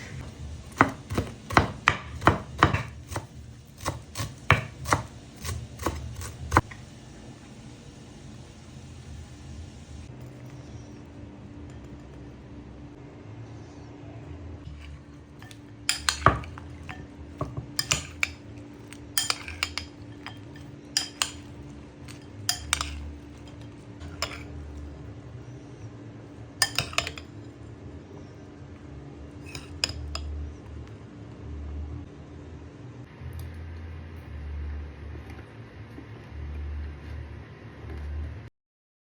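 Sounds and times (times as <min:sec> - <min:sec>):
low hum: 0:02.2 - 0:38.5
metal utensils clinking on dishes: 0:14.8 - 0:24.6, 0:26.6 - 0:27.4, 0:29.4 - 0:30.3.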